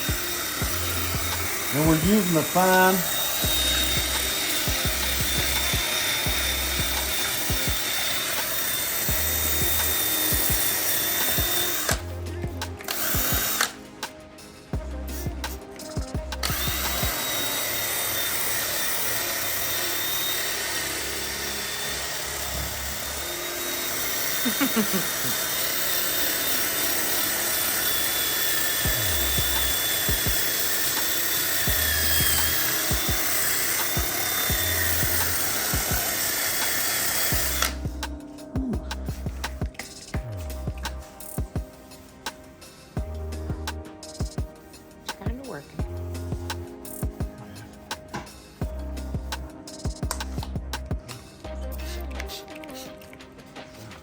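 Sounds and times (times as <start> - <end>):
background music: 0.0 - 54.0
sandpaper sanding plastic: 16.4 - 37.8.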